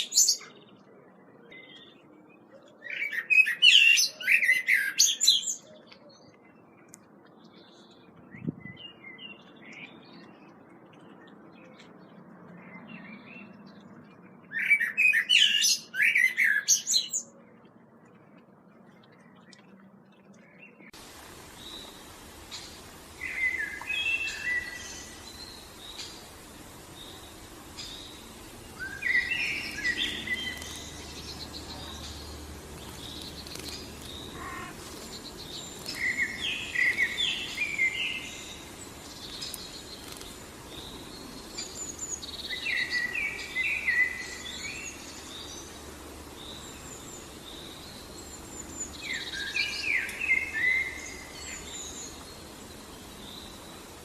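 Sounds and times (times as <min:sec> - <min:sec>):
songbird singing: 0:00.0 - 0:54.0
steady background noise: 0:17.3 - 0:54.0.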